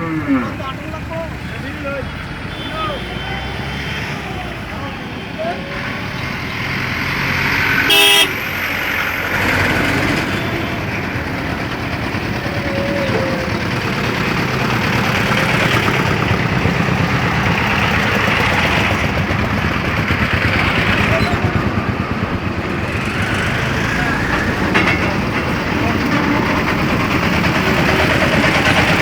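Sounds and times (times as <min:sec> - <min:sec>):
road traffic noise: 0:00.0 - 0:29.0
vehicle horn blast: 0:07.8 - 0:08.5.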